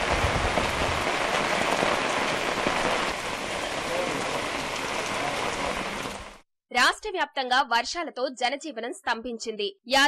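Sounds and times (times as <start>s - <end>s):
heavy rain pouring: 0.0s - 6.4s.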